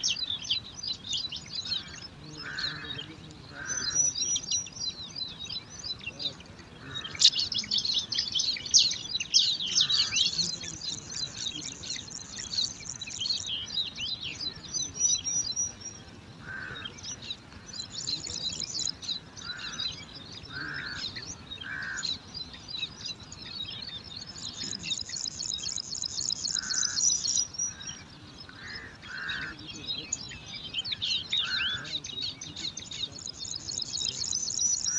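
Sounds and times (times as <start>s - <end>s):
nestlings begging chirps: 0.0s - 34.9s.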